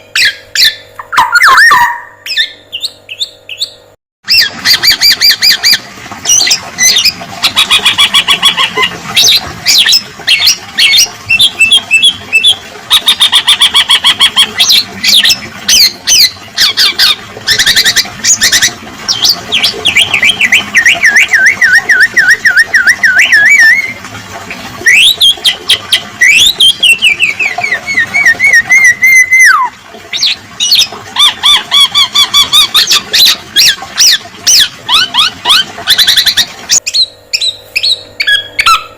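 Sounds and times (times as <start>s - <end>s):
other birds calling: 0.0s - 24.0s, 24.9s - 38.9s.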